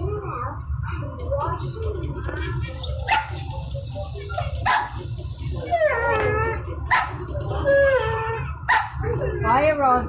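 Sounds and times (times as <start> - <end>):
steady low hum: 0.0 - 10.0
dog yipping: 3.0 - 3.4, 4.6 - 5.0, 5.6 - 9.0
dog whining: 4.4 - 9.3.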